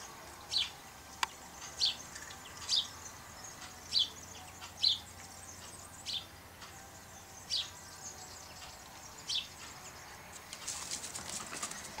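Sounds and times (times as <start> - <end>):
bird chirping: 0.0 - 12.0
outdoor background hiss: 0.0 - 12.0
faint high-pitched clicks and rustles: 9.6 - 12.0.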